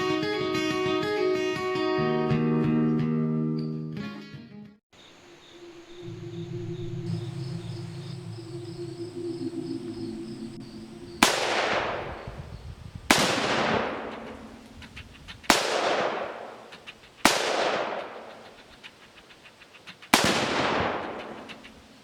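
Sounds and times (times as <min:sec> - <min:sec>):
rifle shots: 0:11.2 - 0:12.4, 0:13.1 - 0:18.8, 0:19.7 - 0:21.8
rolling echo of gunshots: 0:11.2 - 0:18.8, 0:20.0 - 0:21.8.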